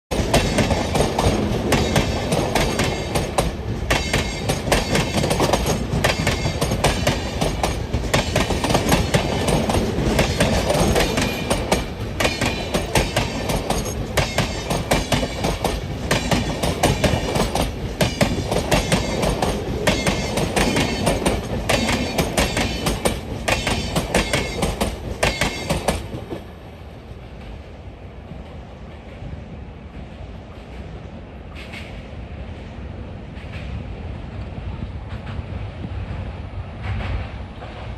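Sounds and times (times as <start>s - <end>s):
train wheels clattering over rail joints: 0.1s - 26.5s
passing train rushing: 0.1s - 37.9s.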